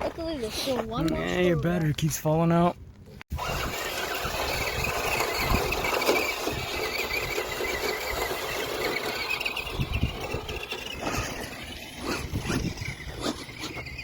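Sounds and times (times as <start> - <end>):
electric motor and gears whining: 3.3 - 14.0
tyres rumbling on ground: 3.3 - 14.0.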